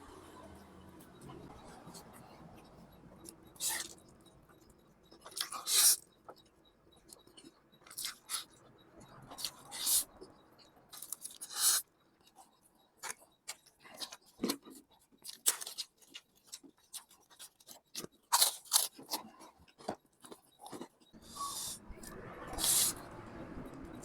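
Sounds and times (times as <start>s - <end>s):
chewing with wet mouth clicks: 2.7s - 23.0s
noodle slurping: 21.2s - 21.8s, 22.5s - 23.0s.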